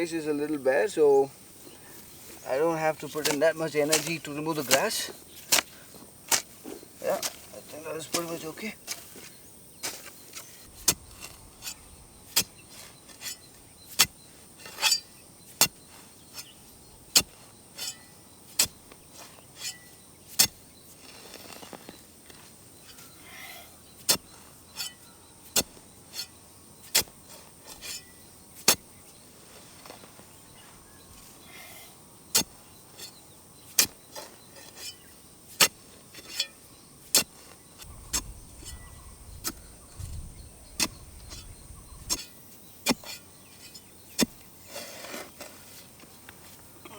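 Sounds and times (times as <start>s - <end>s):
digging tool striking soil: 3.0s - 23.2s, 23.9s - 29.2s, 32.3s - 45.9s.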